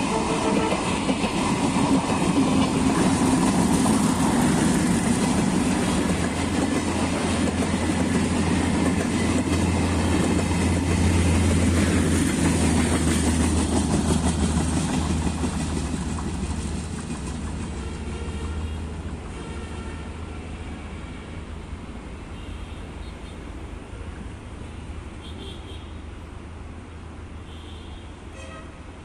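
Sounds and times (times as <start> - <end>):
train wheels rumbling on rails: 0.0 - 22.3.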